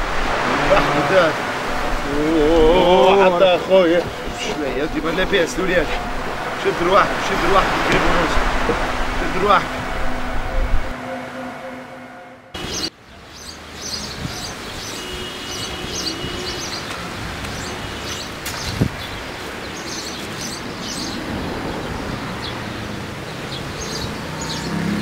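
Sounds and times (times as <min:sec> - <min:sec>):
steady outdoor hiss: 0:00.0 - 0:11.1, 0:12.5 - 0:25.0
small birds chirping: 0:12.6 - 0:24.8.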